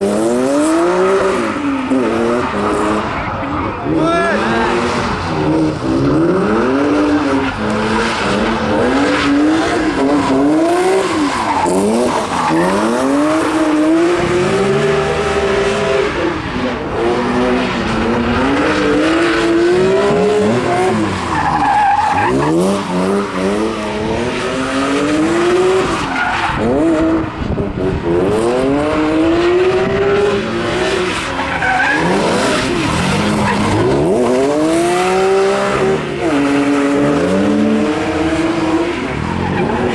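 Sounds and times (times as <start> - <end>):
tyres squealing and skidding: 0.0 - 27.4, 28.6 - 39.9
car engines revving hard: 0.0 - 39.9.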